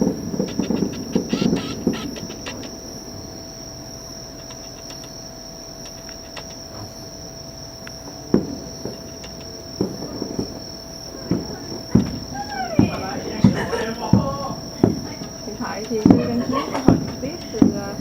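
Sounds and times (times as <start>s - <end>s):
crickets chirring: 0.0s - 18.0s
short thumps: 8.0s - 18.0s.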